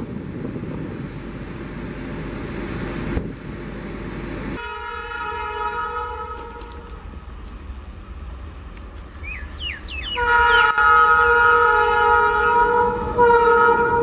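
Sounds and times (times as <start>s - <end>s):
locomotive horn blast: 4.6s - 7.1s, 10.1s - 14.0s.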